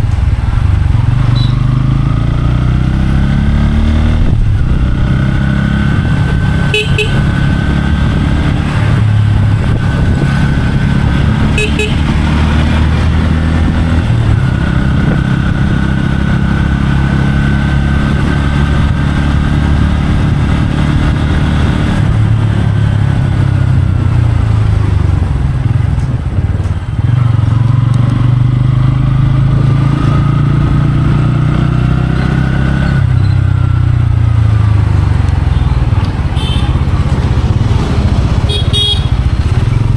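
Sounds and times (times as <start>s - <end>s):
motorcycle engine running: 0.0s - 39.9s
horn toots: 1.3s - 1.7s, 6.6s - 7.6s, 11.4s - 12.4s, 36.3s - 36.8s, 38.4s - 39.4s.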